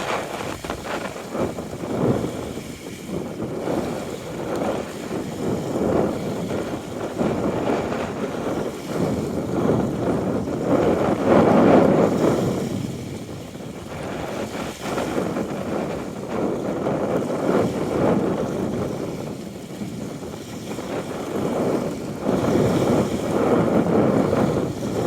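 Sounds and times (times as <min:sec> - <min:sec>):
small waves lapping at shore: 0:00.0 - 0:25.0
wind gusting against microphone: 0:00.0 - 0:25.0.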